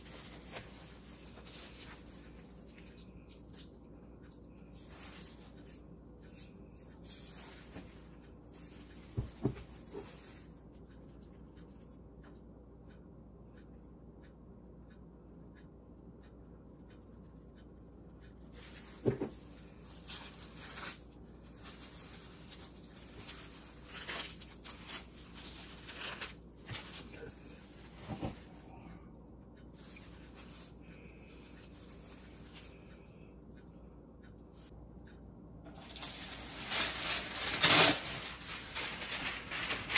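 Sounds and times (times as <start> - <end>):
plastic glove rustling: 0.0 - 3.7, 4.6 - 10.5, 18.6 - 28.8, 29.8 - 32.9, 35.7 - 39.9.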